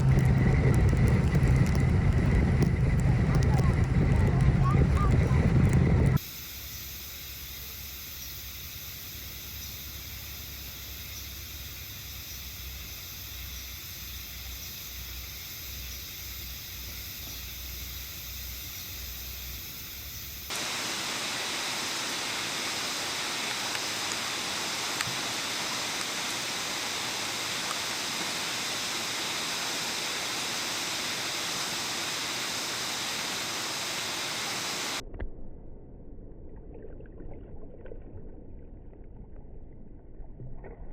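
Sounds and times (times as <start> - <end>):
outdoor rushing hiss: 6.2 - 35.0.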